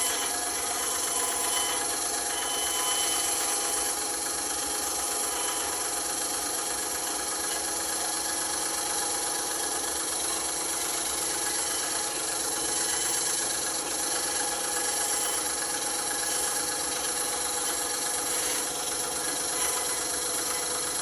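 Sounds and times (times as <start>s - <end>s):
band saw whining: 0.0s - 21.0s.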